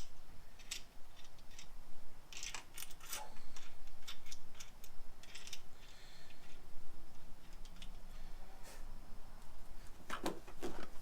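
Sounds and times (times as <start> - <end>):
metal parts clinking: 0.0 - 1.7, 2.3 - 6.6.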